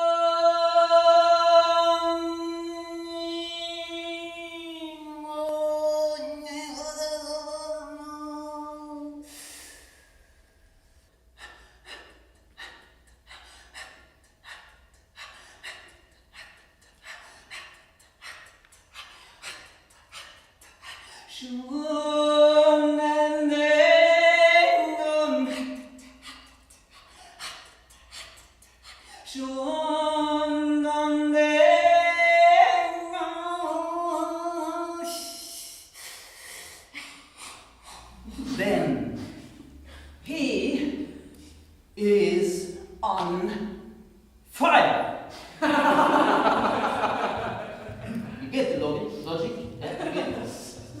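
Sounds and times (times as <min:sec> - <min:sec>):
person singing long held notes: 0:00.0 - 0:09.6, 0:21.3 - 0:26.5.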